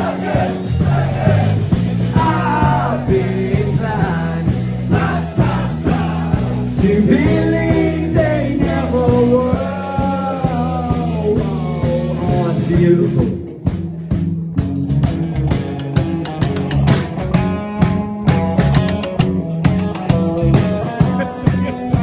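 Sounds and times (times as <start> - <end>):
rock band playing: 0.0 - 22.0
person singing: 6.8 - 13.5.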